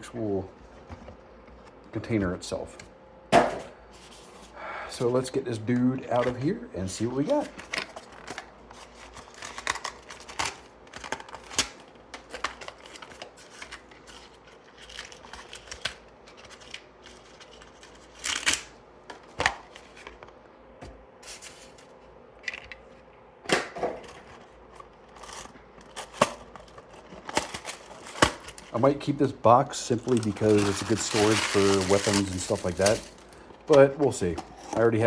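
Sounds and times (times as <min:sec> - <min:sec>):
packaging clicks and rustles: 0:07.1 - 0:20.4, 0:24.0 - 0:28.9, 0:29.8 - 0:35.0.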